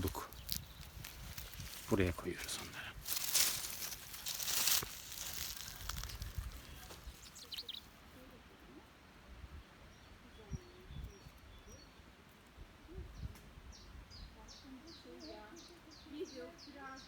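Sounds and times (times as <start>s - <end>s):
rustling handling noise: 0.0s - 7.6s
faint bird chirps: 5.3s - 8.3s, 9.5s - 12.1s.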